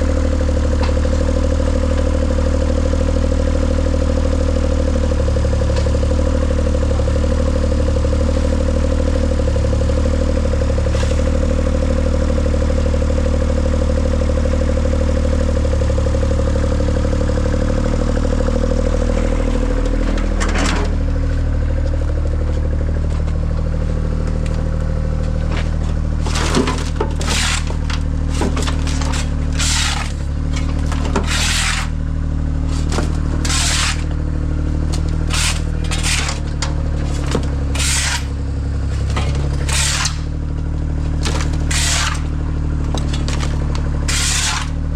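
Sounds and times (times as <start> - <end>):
engine running: 0.0 - 44.9
scraping: 25.4 - 32.0, 32.7 - 34.2, 34.9 - 40.4, 41.1 - 44.9.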